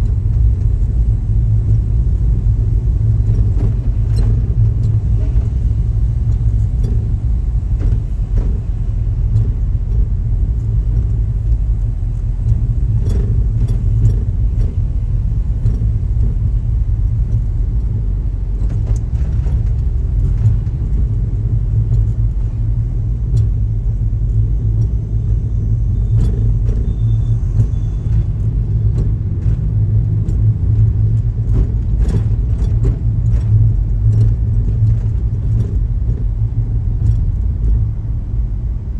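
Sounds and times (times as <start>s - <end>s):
light rattles: 0.0s - 38.4s
helicopter engine and rotor: 25.2s - 28.2s.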